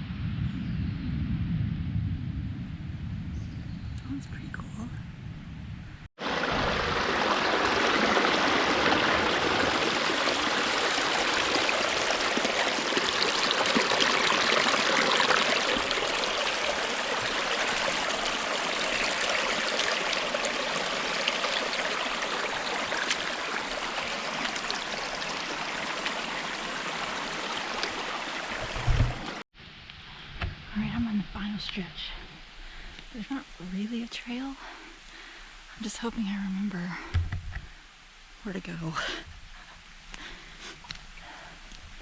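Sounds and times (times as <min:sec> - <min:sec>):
stream running over rocks: 0:06.2 - 0:29.4.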